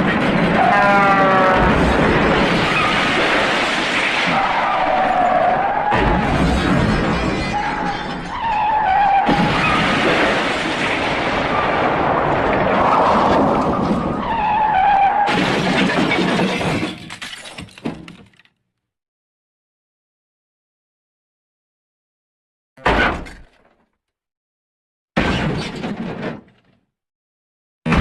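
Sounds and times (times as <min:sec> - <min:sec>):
shattering and smashing crash: 0:00.0 - 0:14.5, 0:15.1 - 0:18.2.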